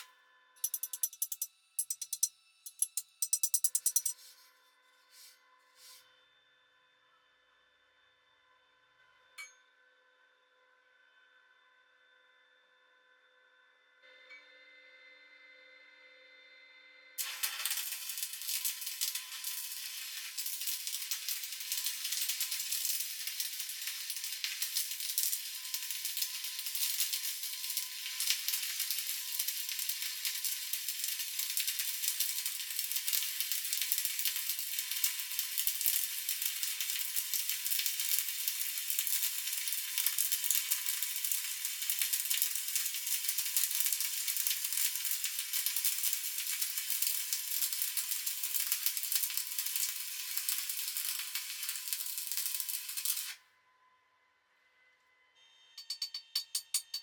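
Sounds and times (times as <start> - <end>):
welding arc crackling: 0.6 - 4.1, 17.2 - 53.4.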